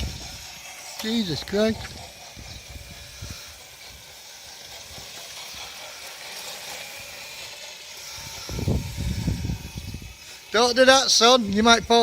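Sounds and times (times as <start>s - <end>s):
electric quad bike motor and tyres: 0.0s - 12.0s.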